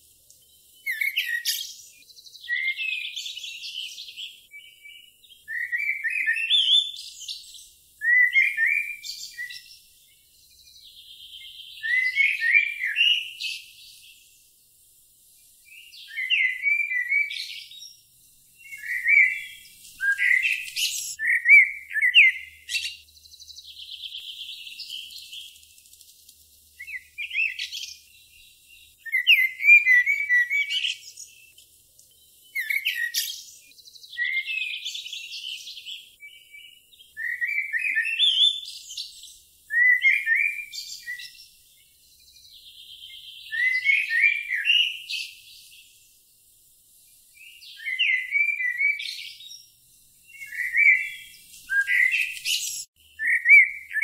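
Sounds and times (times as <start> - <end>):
songbird chirping: 0.0 - 54.0
buzzy bird trills: 18.6 - 31.6.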